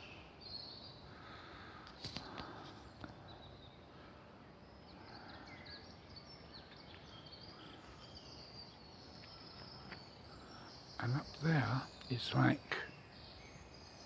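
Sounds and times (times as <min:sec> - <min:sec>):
low background noise: 0:00.0 - 0:14.0
small birds chirping: 0:05.2 - 0:14.0.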